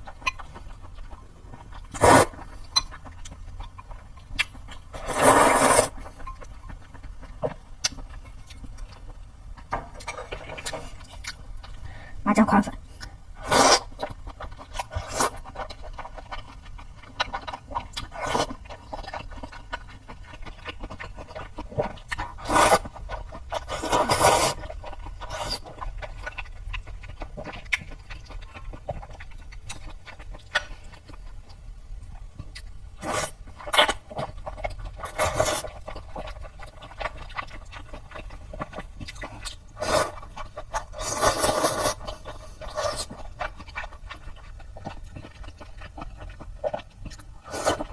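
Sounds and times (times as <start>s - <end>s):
noodle slurping: 2.0s - 2.4s, 5.0s - 6.0s
chewing and lip smacks: 24.6s - 32.8s, 33.4s - 47.9s.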